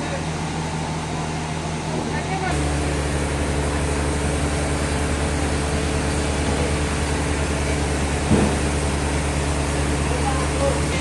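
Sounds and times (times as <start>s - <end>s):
sawmill machinery humming: 0.0s - 11.0s
short knock: 8.3s - 8.8s.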